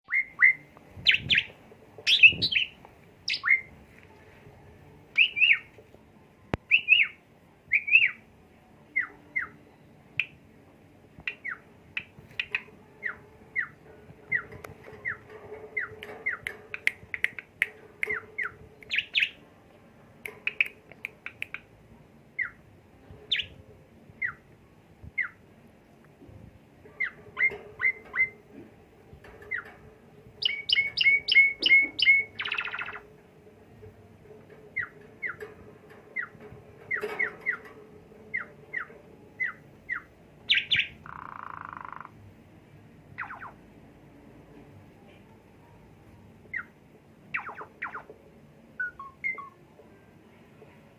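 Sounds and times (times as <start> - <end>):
starling singing: 0.0 - 3.8, 5.1 - 5.8, 6.7 - 8.3, 8.9 - 10.4, 11.2 - 19.4, 22.4 - 22.7, 23.3 - 23.6, 24.2 - 24.5, 26.9 - 28.4, 29.5 - 29.8, 30.4 - 33.1, 34.7 - 37.7, 38.3 - 42.2, 43.2 - 43.6, 46.5 - 48.1, 48.8 - 49.6.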